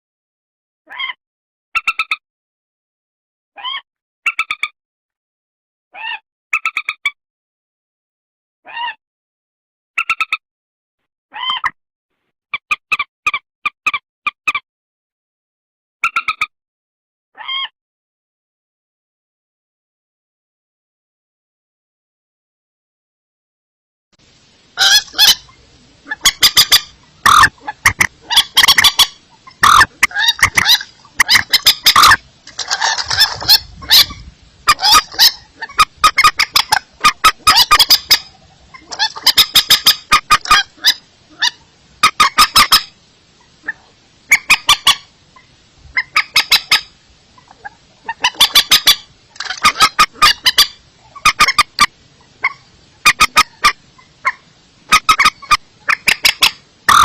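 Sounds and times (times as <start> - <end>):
bird harsh repeated calls: 11.3 - 11.8, 24.8 - 57.0.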